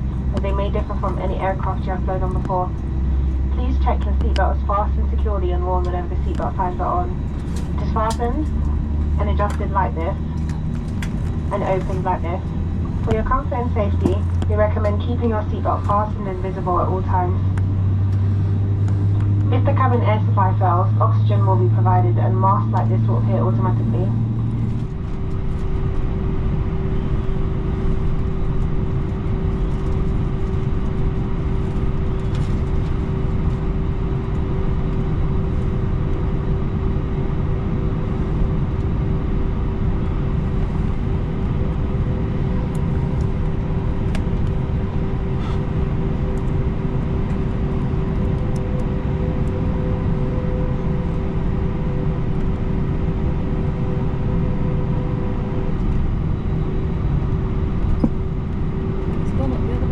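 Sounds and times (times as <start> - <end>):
aircraft cabin rumble: 0.0 - 59.9
steady whine: 0.0 - 59.9.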